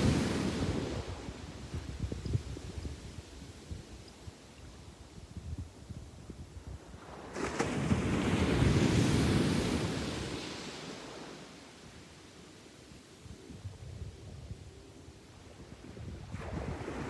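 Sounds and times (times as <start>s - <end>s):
wind rumble on microphone: 0.0s - 11.0s, 13.2s - 17.0s
sea wave breaking on beach: 7.3s - 11.0s.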